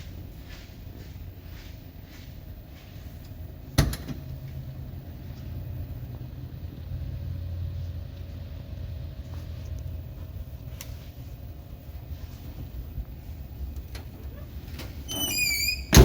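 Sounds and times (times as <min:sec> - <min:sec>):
pickup engine idling: 0:03.3 - 0:14.8.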